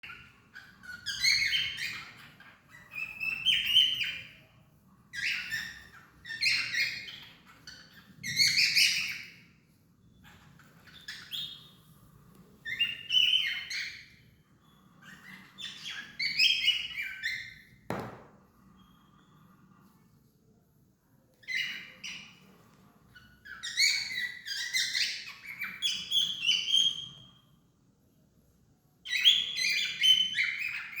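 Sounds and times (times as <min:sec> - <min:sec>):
cockatiel chirping and whistling: 0:00.0 - 0:04.4, 0:05.1 - 0:09.4, 0:10.2 - 0:11.8, 0:12.6 - 0:17.7, 0:21.4 - 0:22.4, 0:23.2 - 0:27.4, 0:29.1 - 0:31.0.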